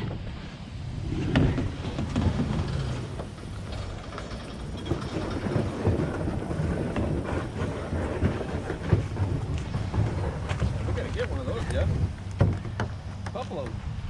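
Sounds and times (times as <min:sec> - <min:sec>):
wind buffeting microphone: 0:00.0 - 0:12.7
paddle splashes: 0:01.4 - 0:09.7.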